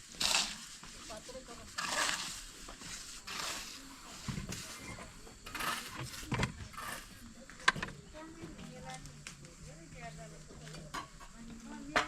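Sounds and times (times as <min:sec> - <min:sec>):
scraping and knocking of building work: 0:00.2 - 0:08.8.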